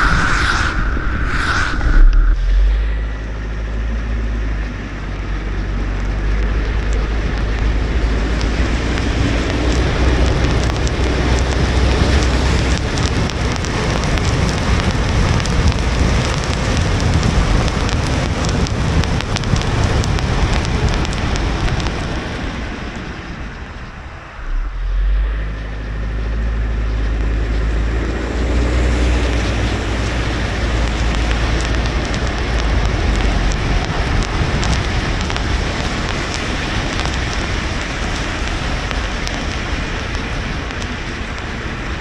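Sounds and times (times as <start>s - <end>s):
low rumble: 0.0s - 42.0s
rain on car: 5.2s - 23.7s, 28.4s - 42.0s.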